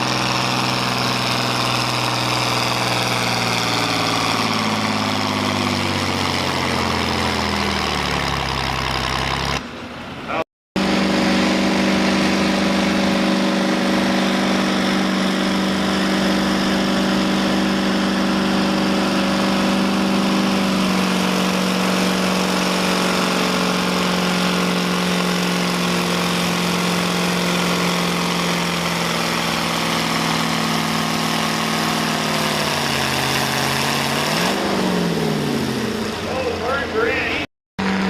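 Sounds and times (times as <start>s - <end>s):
engine running hard under load: 0.0s - 10.2s, 10.8s - 38.0s.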